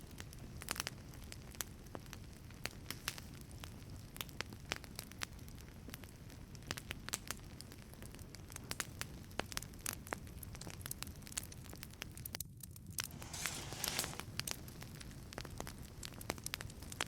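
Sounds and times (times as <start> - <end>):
flames rumbling: 13.0 - 14.4
wood fire crackling: 13.0 - 14.5.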